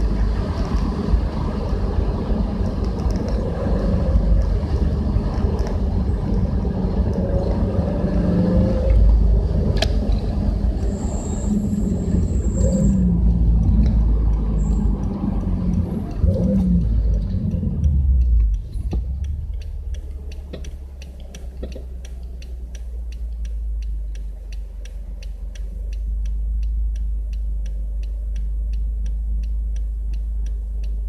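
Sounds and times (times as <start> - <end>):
car engine and exhaust rumbling: 0.0 - 31.0
road noise: 0.0 - 31.0
click: 12.5 - 31.0.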